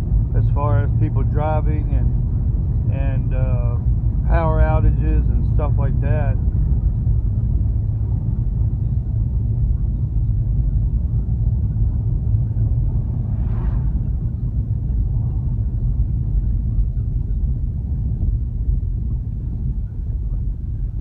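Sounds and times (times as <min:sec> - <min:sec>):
car driving interior rumble: 0:00.0 - 0:21.0.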